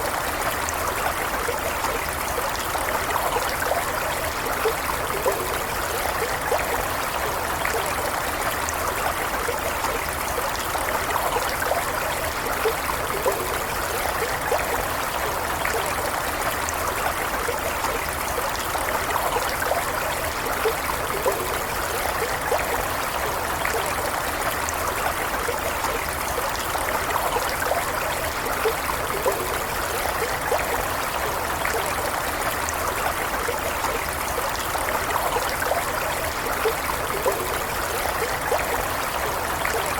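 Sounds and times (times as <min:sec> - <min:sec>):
stream running over stones: 0:00.0 - 0:39.9.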